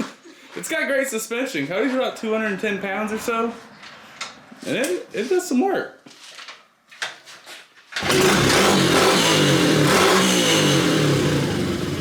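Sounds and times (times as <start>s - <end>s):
motorbike engine revving: 8.0s - 12.0s.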